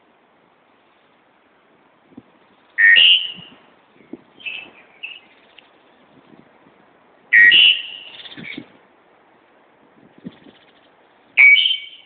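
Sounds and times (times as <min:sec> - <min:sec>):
bird calling rising two notes: 0:07.3 - 0:08.6, 0:11.4 - 0:12.0.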